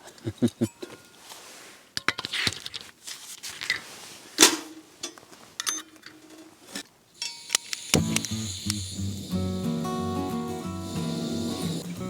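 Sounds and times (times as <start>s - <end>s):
cookware clicking and clinking: 7.2s - 7.8s
sharp metallic clink: 7.2s - 9.2s.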